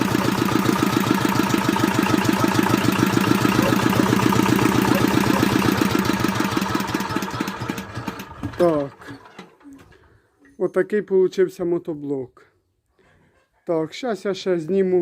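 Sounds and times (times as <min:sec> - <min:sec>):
diesel engine idling: 0:00.0 - 0:08.5.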